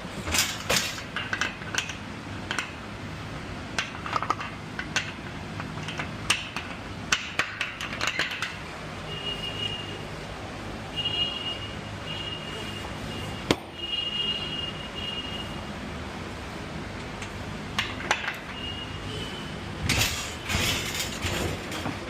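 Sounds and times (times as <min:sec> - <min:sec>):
ratchet straps clicking and clanking: 0:19.8 - 0:22.0.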